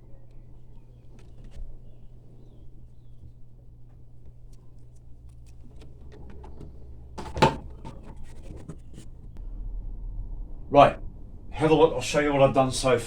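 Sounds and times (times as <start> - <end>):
small clicks and rustles: 0.0 - 9.4
steady low hum: 0.0 - 11.5.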